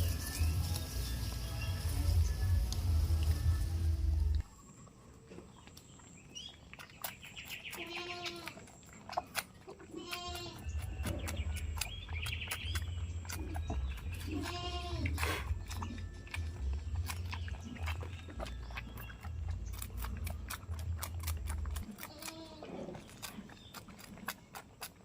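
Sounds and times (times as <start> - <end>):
low rumble: 0.0 - 4.5
goats bleating: 7.8 - 8.6, 9.9 - 10.7, 14.2 - 15.3, 22.0 - 22.8.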